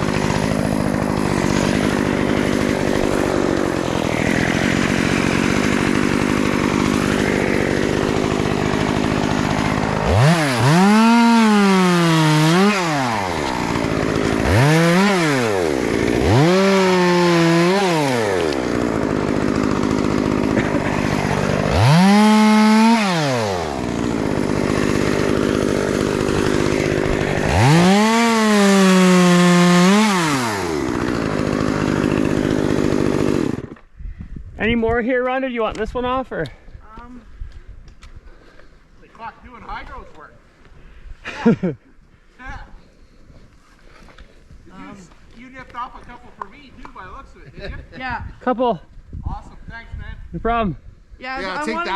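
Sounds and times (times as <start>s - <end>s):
chainsaw idling and revving: 0.0s - 33.9s, 51.4s - 51.9s.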